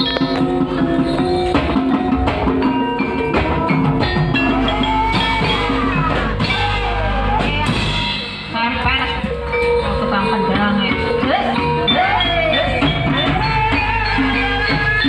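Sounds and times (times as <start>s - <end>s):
struck metal keys ringing: 0.0s - 3.9s
drum strokes: 0.0s - 15.0s
sliding melodic line: 0.0s - 15.0s.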